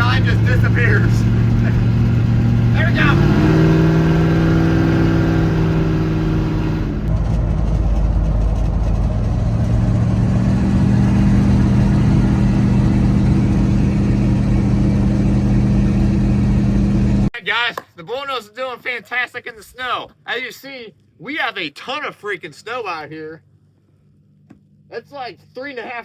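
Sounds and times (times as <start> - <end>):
car engine running: 0.0 - 17.3.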